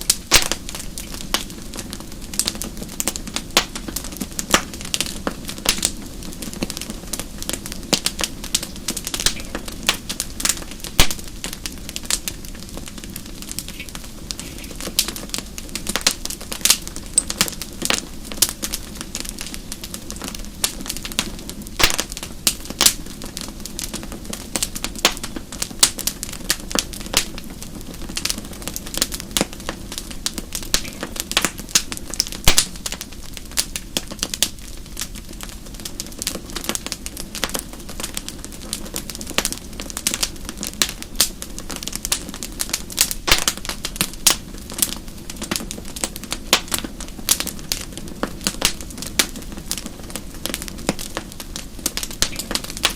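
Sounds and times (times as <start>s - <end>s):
logs crackling in fireplace: 0.0s - 52.9s.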